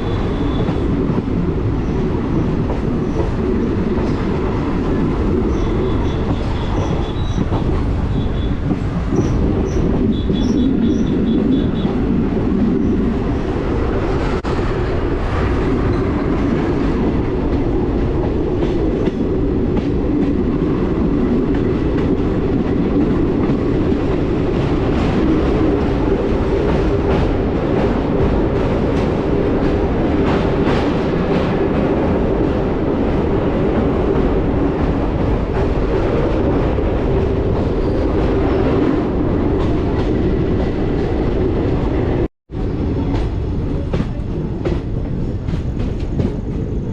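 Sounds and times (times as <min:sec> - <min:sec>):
train wheels rumbling on rail: 0:00.0 - 0:46.9.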